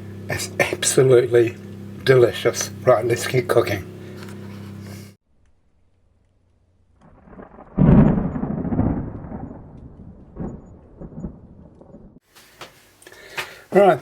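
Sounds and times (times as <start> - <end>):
thunder crashing and rumbling: 7.0 - 12.2.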